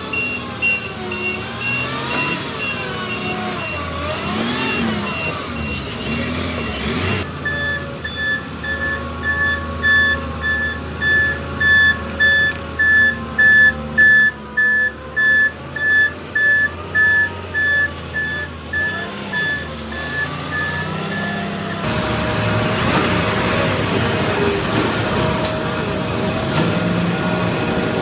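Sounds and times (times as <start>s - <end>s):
truck engine running: 0.0s - 28.0s
truck reverse alarm beeping: 0.0s - 28.0s.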